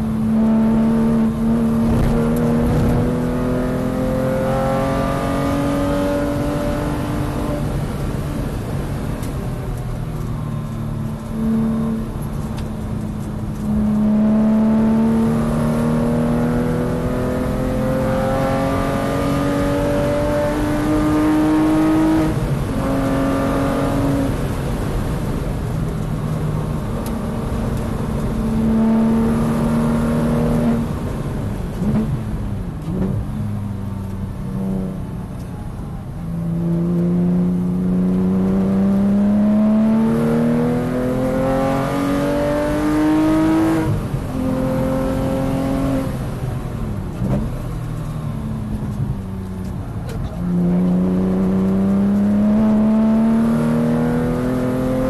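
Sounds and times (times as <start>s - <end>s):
car engine revving from inside cabin: 0.3s - 7.6s, 11.2s - 12.2s, 13.5s - 24.3s, 27.0s - 31.0s, 36.4s - 46.2s, 50.2s - 55.0s.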